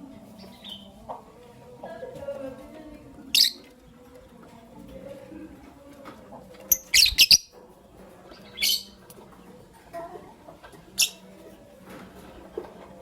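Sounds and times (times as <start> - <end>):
lovebirds chirping shrilly: 6.7 - 7.5.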